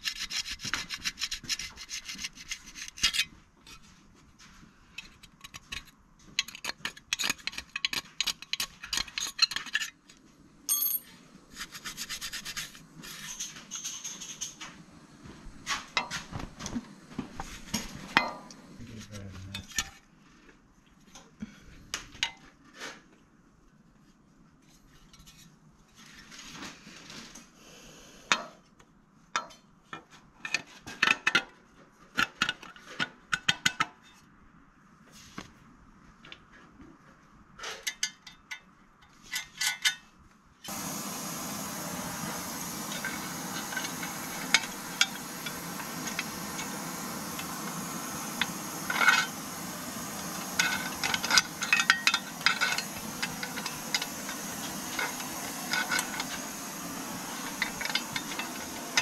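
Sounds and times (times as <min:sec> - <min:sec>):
metal parts clicking and clinking: 0:05.0 - 0:11.2, 0:42.6 - 0:56.7, 0:57.4 - 0:59.0
scraping against metal: 0:42.6 - 0:59.0.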